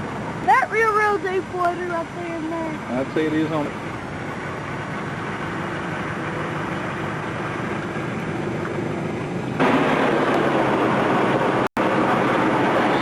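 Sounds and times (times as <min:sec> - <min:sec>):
car engine and road drone: 0:00.0 - 0:13.0
rushing noise: 0:03.7 - 0:13.0.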